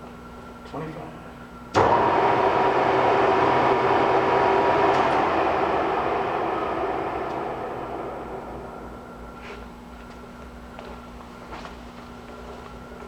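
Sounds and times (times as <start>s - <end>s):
lathe humming with faint whine: 1.8s - 10.9s.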